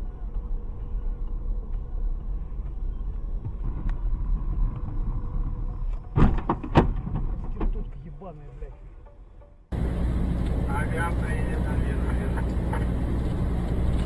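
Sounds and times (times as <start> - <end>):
road rumble inside car: 0.0 - 8.8, 9.7 - 14.0
loud thuds of car striking: 6.1 - 7.7.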